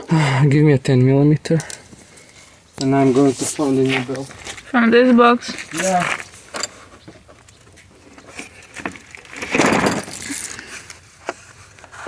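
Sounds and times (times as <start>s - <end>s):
rustling scrape: 2.1s - 4.7s
small metal objects clinking: 5.5s - 6.8s.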